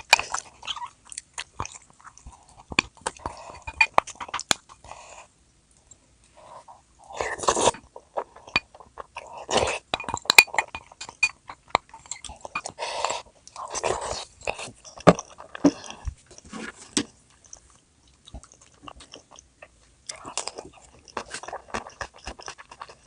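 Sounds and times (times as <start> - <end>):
person biting and chewing food: 7.1 - 23.0.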